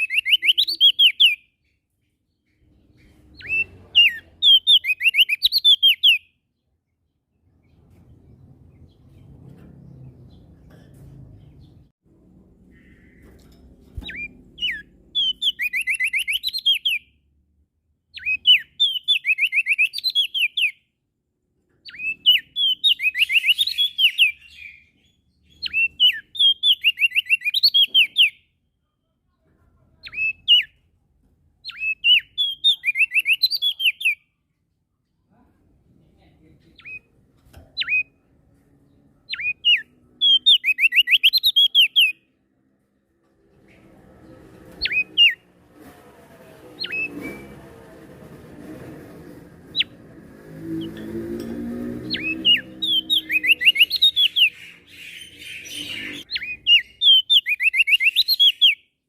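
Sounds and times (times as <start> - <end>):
bird singing sharp whistled notes: 39.3 - 42.2, 52.1 - 58.8.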